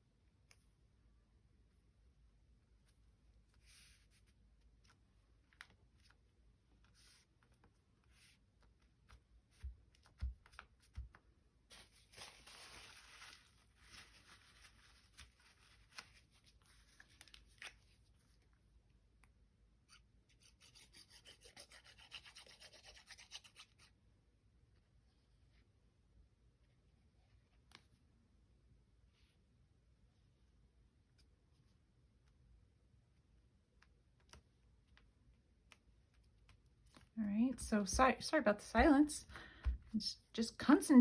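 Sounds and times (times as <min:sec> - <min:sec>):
paper rustling and rubbing: 0:03.5 - 0:06.2, 0:09.5 - 0:18.5.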